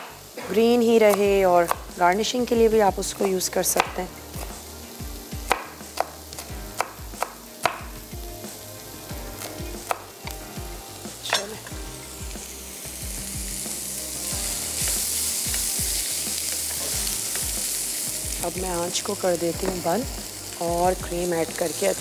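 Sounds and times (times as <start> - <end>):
food sizzling in a pan: 0.0 - 22.0.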